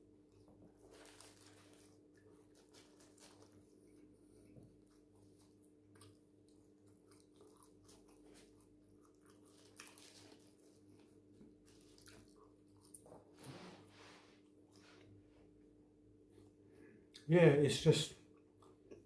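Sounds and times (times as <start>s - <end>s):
chewing and mouth sounds: 0.3s - 13.4s, 18.2s - 19.0s.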